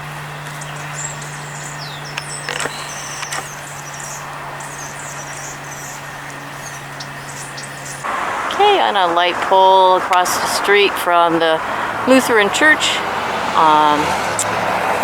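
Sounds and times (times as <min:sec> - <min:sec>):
small birds chirping: 0:00.0 - 0:15.0
street traffic rushing: 0:00.0 - 0:15.0.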